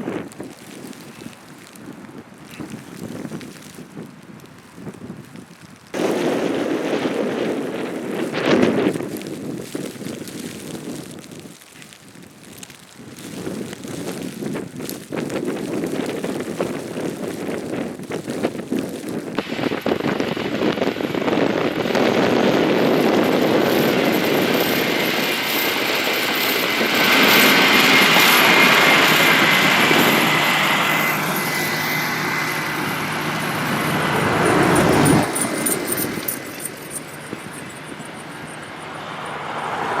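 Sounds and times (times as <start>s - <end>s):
faint whine: 19.2s - 40.0s
vehicles passing by: 25.4s - 40.0s.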